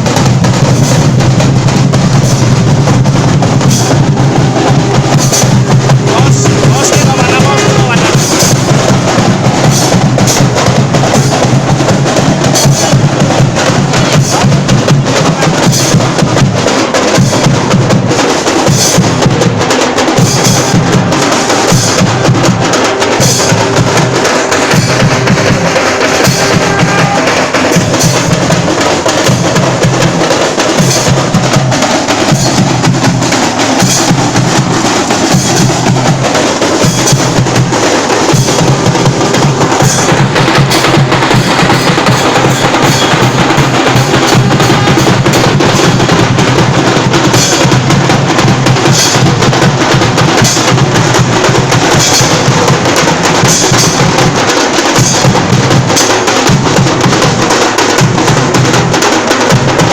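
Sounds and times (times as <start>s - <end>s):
fast drumming: 0.0s - 59.9s
sharp clacking percussion: 0.0s - 59.9s.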